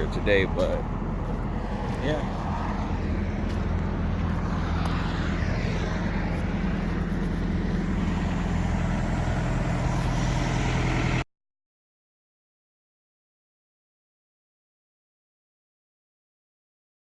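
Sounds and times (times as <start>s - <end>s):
road noise inside vehicle: 0.0s - 11.3s
vehicle engine drone: 0.0s - 11.3s.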